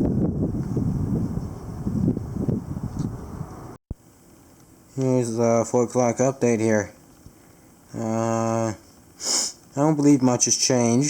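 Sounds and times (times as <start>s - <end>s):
gusty wind on microphone: 0.0s - 3.8s.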